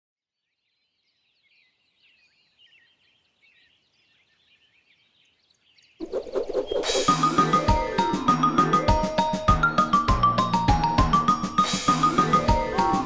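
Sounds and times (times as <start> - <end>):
faint birdsong chirps: 0.3 - 7.2.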